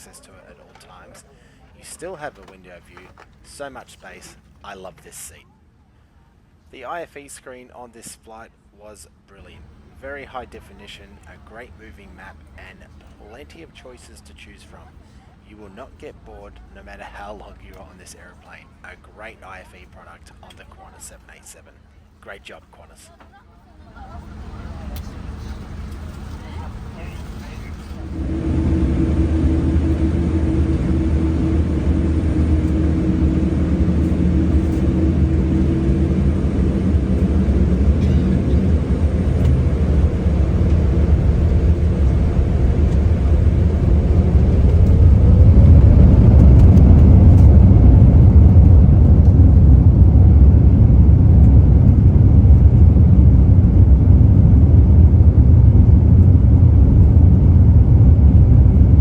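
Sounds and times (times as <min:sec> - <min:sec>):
takeoff roll rumble: 0:23.8 - 0:59.0
jet engines spooling up: 0:24.2 - 0:59.0.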